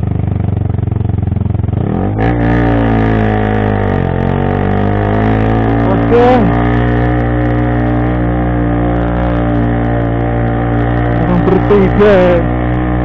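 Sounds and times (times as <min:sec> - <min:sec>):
motorcycle engine running: 0:00.0 - 0:13.0
person exclaiming: 0:05.9 - 0:06.6, 0:11.2 - 0:12.4.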